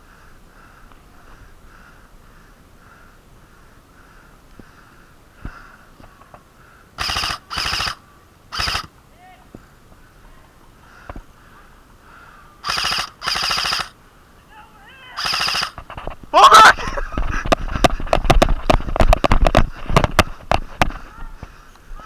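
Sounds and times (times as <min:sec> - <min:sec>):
airsoft guns firing: 0:07.0 - 0:08.9, 0:12.6 - 0:14.0, 0:15.2 - 0:16.9.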